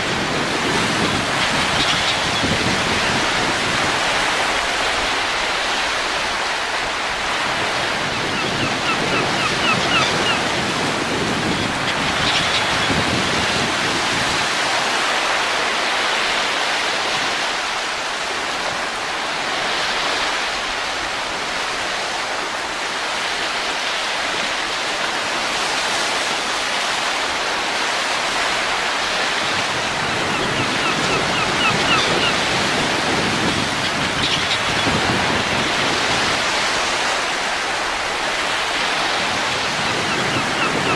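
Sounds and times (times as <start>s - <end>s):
wind gusts: 0.0s - 40.9s.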